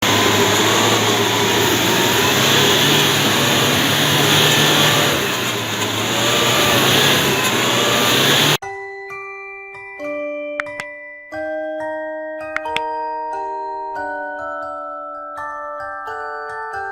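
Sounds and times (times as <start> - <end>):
pickup engine under load: 0.0 - 8.6
rush of driving noise: 0.0 - 8.6.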